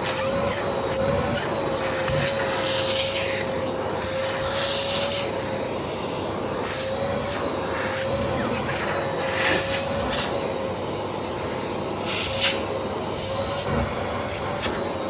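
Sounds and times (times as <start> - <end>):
vacuum cleaner motor whine: 0.0 - 15.0.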